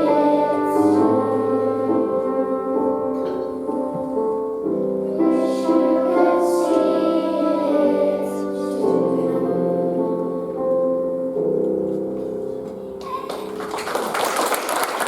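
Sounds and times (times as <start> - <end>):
children's choir singing: 0.0 - 11.0
piano accompaniment: 0.0 - 15.0.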